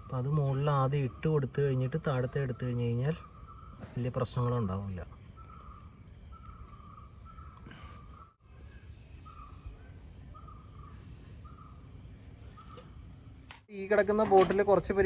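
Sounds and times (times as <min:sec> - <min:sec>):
bird repeated short calls: 0:00.0 - 0:11.8.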